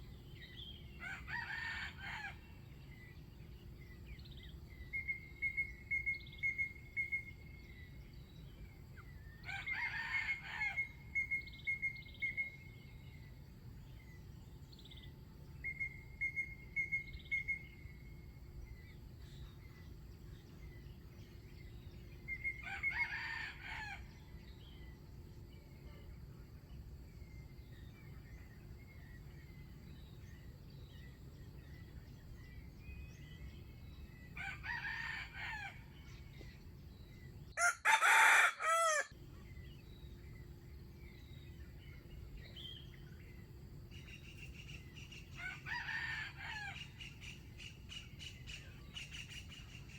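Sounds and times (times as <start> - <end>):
rooster crowing: 1.0 - 2.4, 9.4 - 10.9, 22.6 - 24.1, 34.4 - 35.8, 37.6 - 39.2, 45.4 - 46.9.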